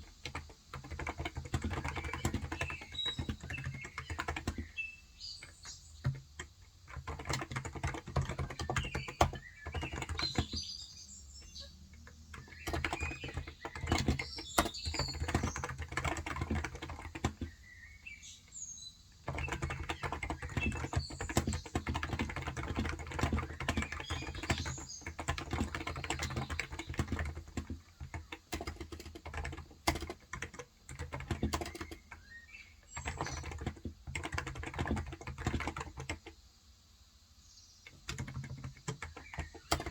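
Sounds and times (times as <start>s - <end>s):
keyboard typing: 0.0s - 17.8s, 19.2s - 36.4s, 37.8s - 39.9s
birds chirping faintly: 0.0s - 39.9s.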